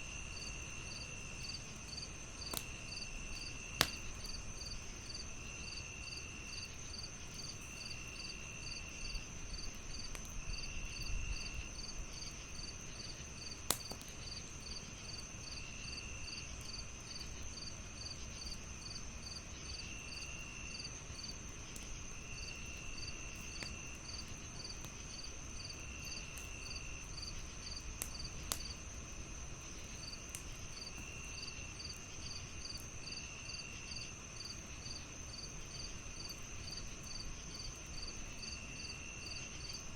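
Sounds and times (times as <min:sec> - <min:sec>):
crickets chirping: 0:00.0 - 0:39.9
wood fire crackling: 0:00.0 - 0:39.9
high insect trill: 0:00.1 - 0:21.3.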